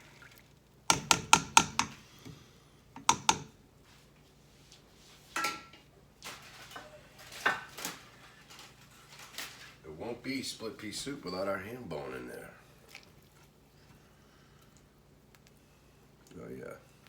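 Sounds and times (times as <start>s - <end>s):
cookware clattering: 5.4s - 9.7s.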